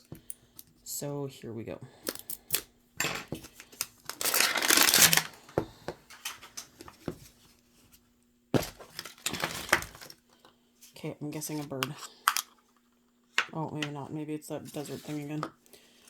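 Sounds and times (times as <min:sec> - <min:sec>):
plastic packaging tearing and crinkling: 0:03.6 - 0:05.4, 0:08.7 - 0:10.2.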